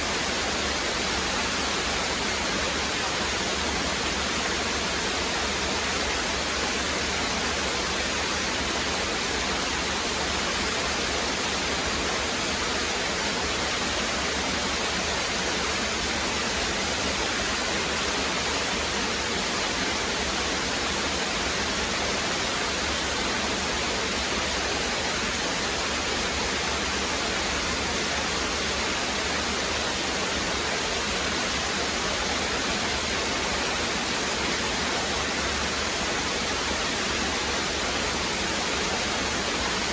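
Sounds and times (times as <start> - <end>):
brook water rushing over stones: 0.0 - 39.9.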